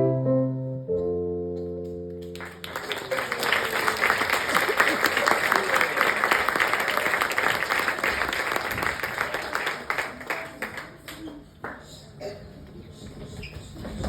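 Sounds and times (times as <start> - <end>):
audience applause: 2.3 - 11.5.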